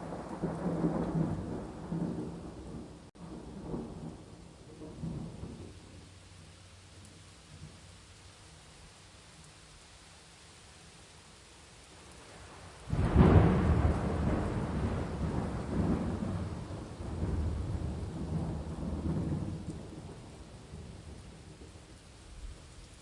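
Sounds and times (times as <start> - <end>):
thunder rumbling: 0.0 - 6.1, 12.3 - 22.0
steady rain: 0.0 - 23.0.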